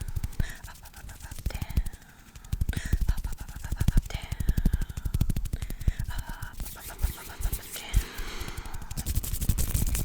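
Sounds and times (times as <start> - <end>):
rapid hand clicks: 0.0 - 8.0.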